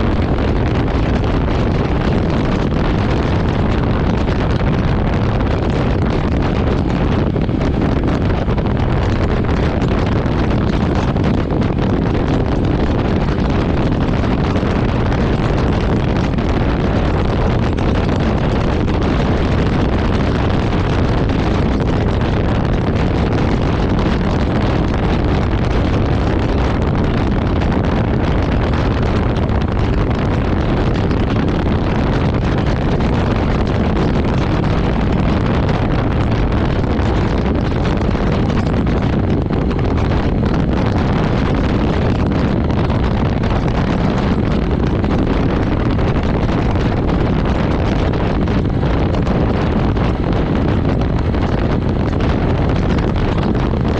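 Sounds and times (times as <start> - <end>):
motorcycle engine running: 0.0 - 53.9
wind buffeting microphone: 0.0 - 53.9.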